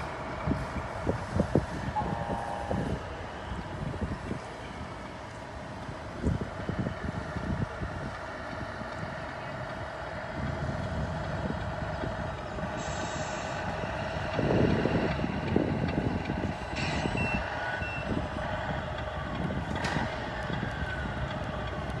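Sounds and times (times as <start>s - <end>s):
simulated truck engine: 0.0s - 22.0s
reversing beeper: 1.9s - 3.6s, 16.8s - 18.2s.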